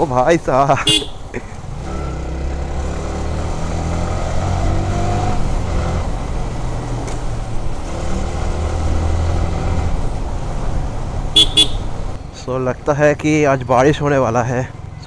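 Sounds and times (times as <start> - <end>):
road and wind noise: 0.0 - 15.0.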